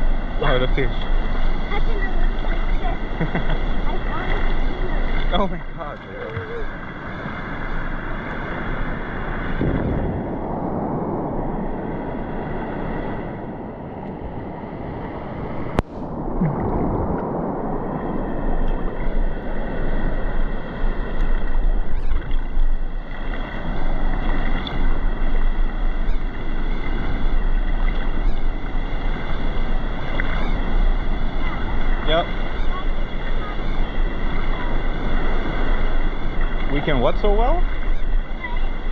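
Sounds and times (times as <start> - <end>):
wind buffeting microphone: 0.0 - 38.9
water sloshing around rocks: 15.8 - 38.9.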